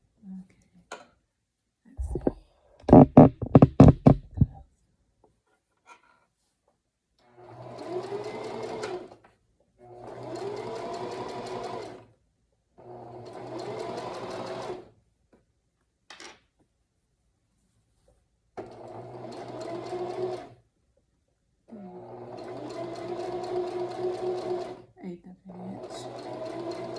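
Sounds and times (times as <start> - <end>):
sewing machine running: 7.5 - 9.1, 10.0 - 12.0, 13.1 - 14.8, 18.7 - 20.5, 22.0 - 24.9, 25.8 - 26.9.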